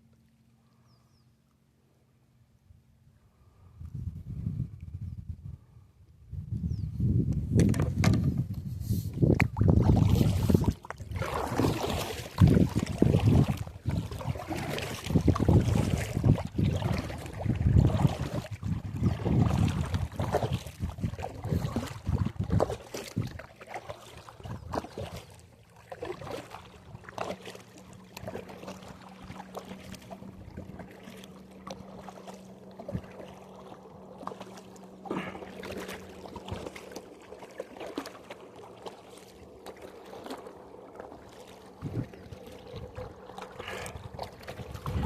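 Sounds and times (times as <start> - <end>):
low motor hum: 0.0 - 45.0
wind buffeting microphone: 3.5 - 23.4, 41.8 - 45.0.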